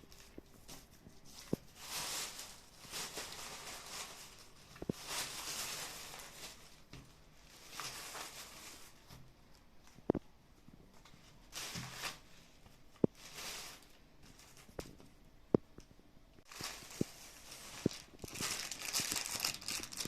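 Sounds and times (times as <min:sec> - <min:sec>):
packaging rustling and crinkling: 0:00.0 - 0:10.2, 0:10.9 - 0:15.1, 0:16.4 - 0:20.0.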